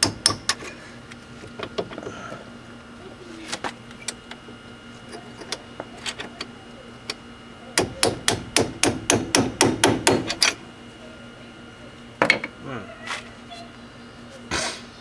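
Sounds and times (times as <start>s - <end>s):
hammer striking chisel: 7.8s - 10.5s.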